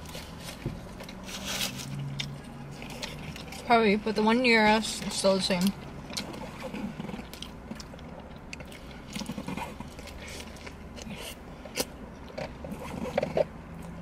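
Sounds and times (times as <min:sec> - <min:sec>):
person biting and chewing: 0:00.0 - 0:03.7, 0:05.9 - 0:14.0
low steady hum: 0:00.0 - 0:14.0.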